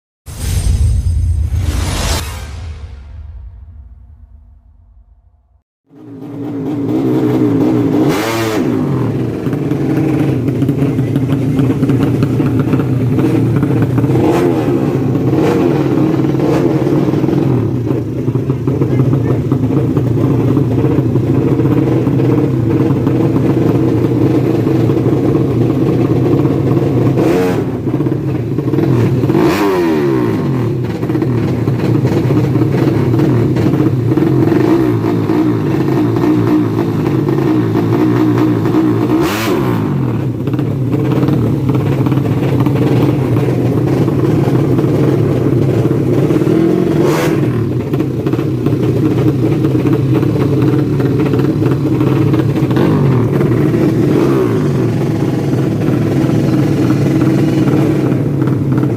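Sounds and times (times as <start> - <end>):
moped engines running: 5.9 - 58.9.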